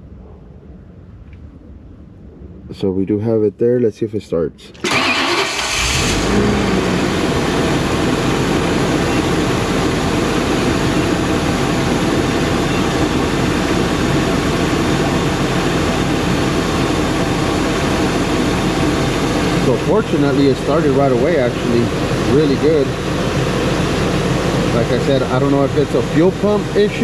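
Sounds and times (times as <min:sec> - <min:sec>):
engine cranking and starting: 0:04.8 - 0:06.9
engine idling: 0:04.8 - 0:27.0.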